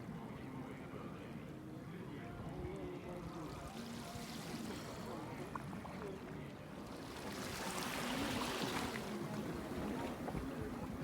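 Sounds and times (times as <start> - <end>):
faint distant voices: 0.0 - 11.0
small waves washing in: 3.4 - 11.0.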